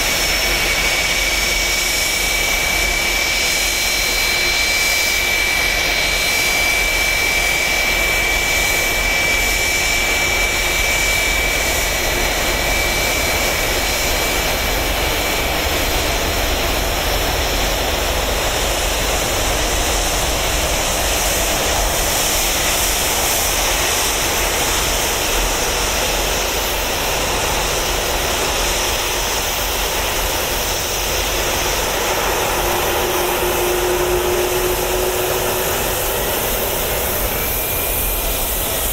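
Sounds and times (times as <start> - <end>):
high whine: 0.0 - 38.9
jet engines idling: 0.0 - 38.9
low hum: 29.6 - 38.9.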